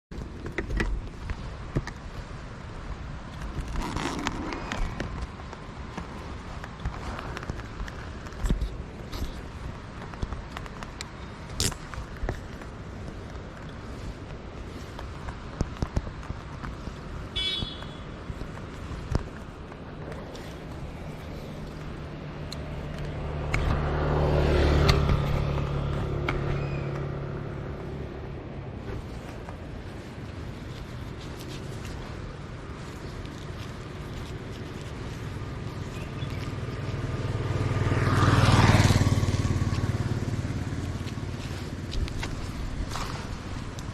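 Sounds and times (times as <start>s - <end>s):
motorcycle exhaust on the move: 0.1s - 43.9s
motorcycle engine running: 34.0s - 43.9s.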